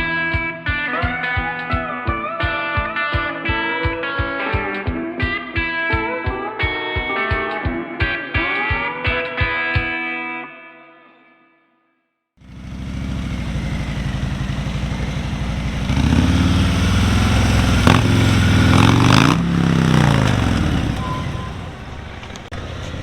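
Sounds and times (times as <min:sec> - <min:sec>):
motorcycle engine revving: 0:12.4 - 0:23.0.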